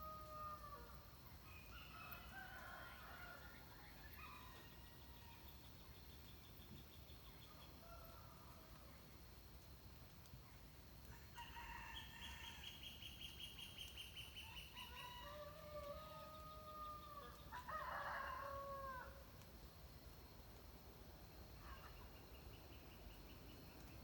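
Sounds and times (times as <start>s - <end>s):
distant rooster crowing: 14.8s - 19.2s.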